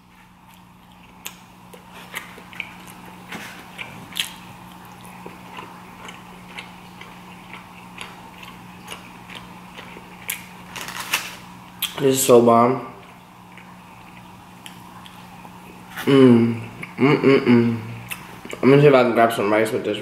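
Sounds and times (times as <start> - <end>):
close-up chewing: 0.1 - 12.0, 13.0 - 17.0.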